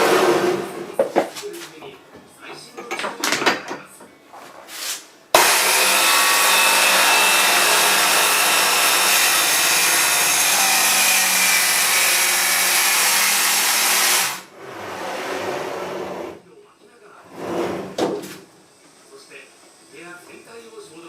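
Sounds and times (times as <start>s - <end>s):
saw blade cutting wood: 5.4s - 16.4s.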